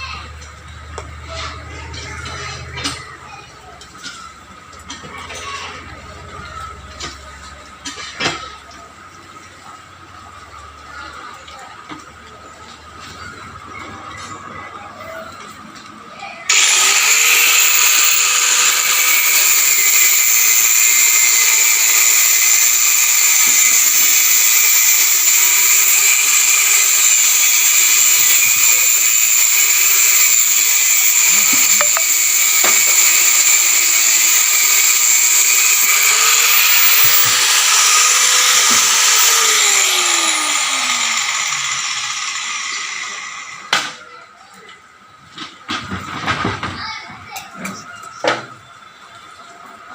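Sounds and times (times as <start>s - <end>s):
cut-off wheel grinding steel: 16.5s - 43.9s.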